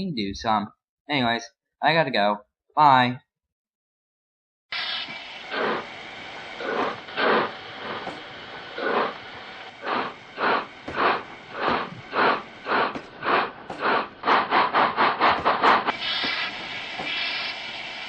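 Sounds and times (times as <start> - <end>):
steady hiss of steam: 4.7 - 18.0
steam locomotive chuffing: 4.7 - 18.0.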